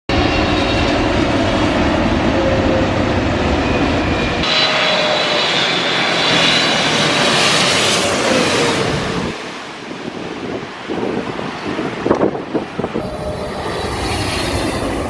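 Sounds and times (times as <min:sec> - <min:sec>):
high engine whine: 0:00.1 - 0:09.9, 0:12.5 - 0:15.0
jet engines rushing: 0:00.1 - 0:15.0
deep engine rumble: 0:12.9 - 0:15.0.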